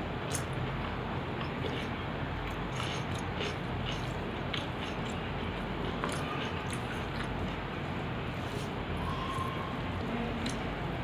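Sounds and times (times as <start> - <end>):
wet mouth clicks and smacks: 0.2 - 0.6, 1.4 - 7.6, 10.4 - 10.7
person chewing food: 0.2 - 7.8.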